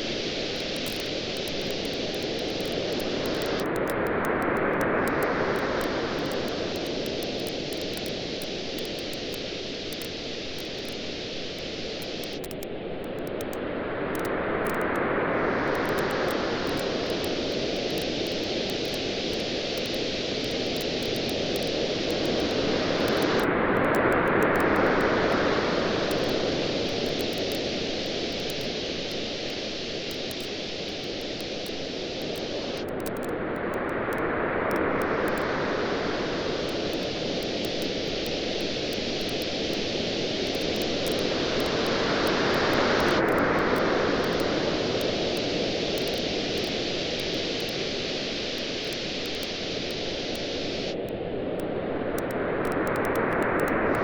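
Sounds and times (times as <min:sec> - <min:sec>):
ocean waves washing onto beach: 0:00.0 - 0:54.0
bonfire crackling: 0:15.7 - 0:23.4, 0:26.1 - 0:33.2, 0:36.4 - 0:50.5.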